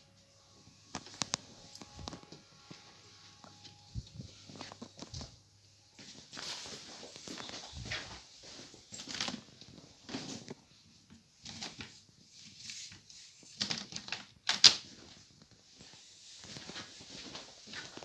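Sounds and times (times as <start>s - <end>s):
footsteps: 0.8s - 10.6s, 15.0s - 18.0s.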